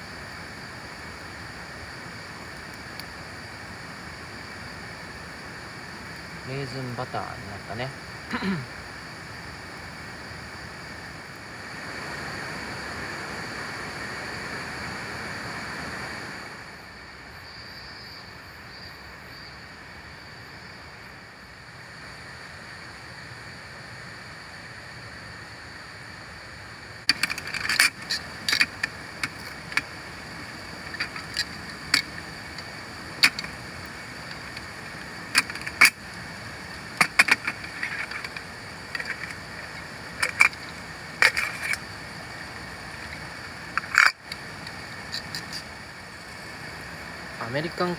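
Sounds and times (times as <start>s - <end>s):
river: 0.0s - 17.0s, 23.6s - 47.9s
rain hiss: 0.0s - 17.4s, 19.1s - 47.9s
sharp irregular clicks and knocks: 27.1s - 45.7s.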